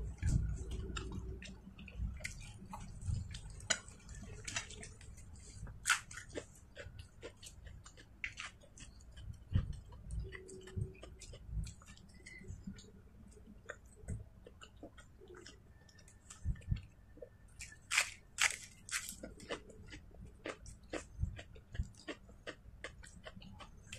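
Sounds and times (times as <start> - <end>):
chewing with soft clicks: 0.0 - 17.9, 18.6 - 23.9
crisp bite into lettuce: 17.9 - 19.2.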